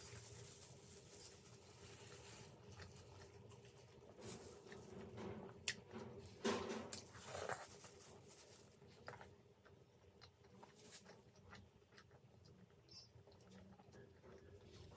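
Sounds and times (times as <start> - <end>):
person chewing food: 8.8 - 14.9.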